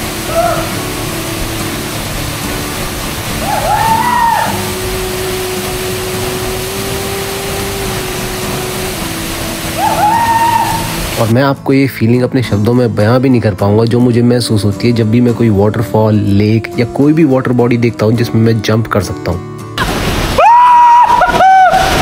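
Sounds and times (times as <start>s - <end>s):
waterfall rushing: 0.0s - 11.3s, 19.8s - 22.0s
background music held notes: 0.0s - 19.8s.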